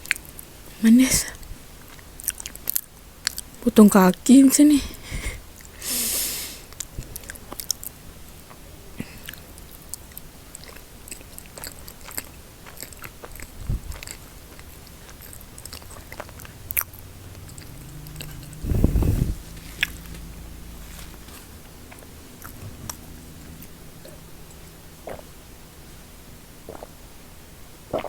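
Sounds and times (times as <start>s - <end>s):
person chewing snacks: 6.7s - 18.6s
crackling noise: 6.7s - 28.0s
wet mouth clicks: 9.2s - 20.3s, 21.9s - 25.3s, 26.7s - 27.0s.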